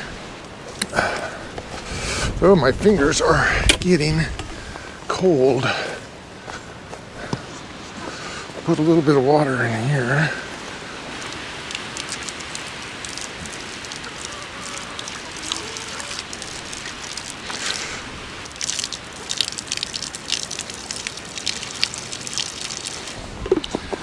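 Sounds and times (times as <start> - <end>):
water splashes and drips: 8.0 - 24.0
water trickling pour: 11.0 - 24.0.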